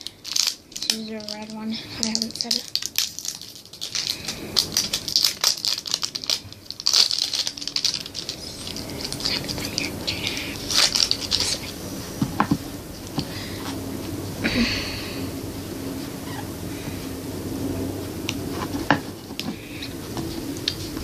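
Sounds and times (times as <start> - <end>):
plastic packaging crinkling: 0.0 - 13.3.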